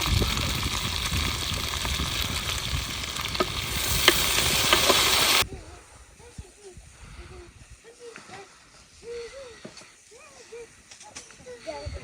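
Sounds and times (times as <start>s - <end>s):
food sizzling in a pan: 0.0s - 5.4s.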